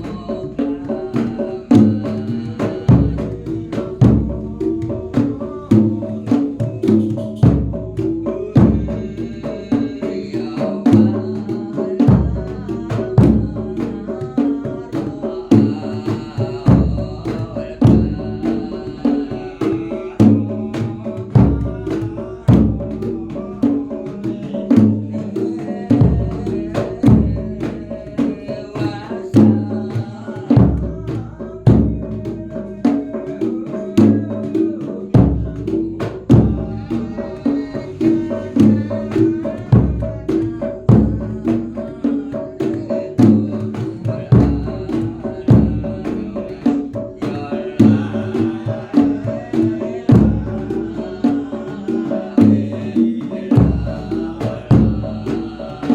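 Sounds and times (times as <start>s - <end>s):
folk percussion ensemble: 0.0s - 55.9s
bass drum beating: 1.5s - 9.4s, 12.0s - 23.6s, 30.5s - 32.8s, 35.1s - 42.0s, 42.8s - 55.9s.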